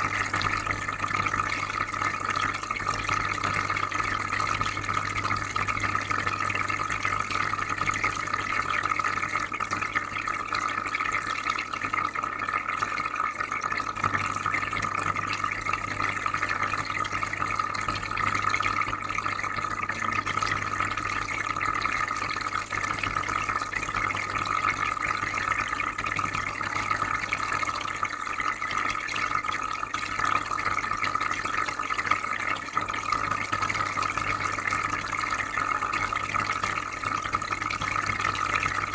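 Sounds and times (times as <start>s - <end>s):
aquarium filter bubbling water: 0.0s - 38.9s.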